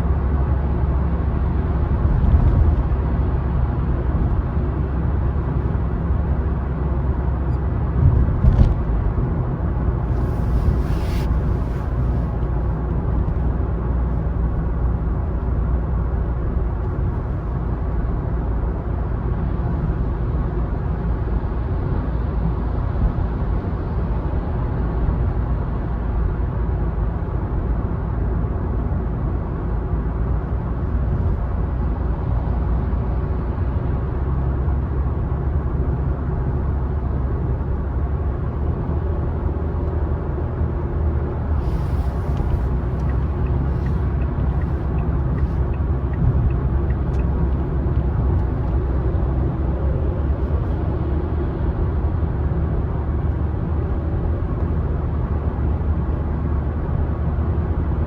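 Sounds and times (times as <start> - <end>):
car road and engine rumble: 0.0 - 58.0
short hiss: 10.1 - 12.4, 41.6 - 45.6.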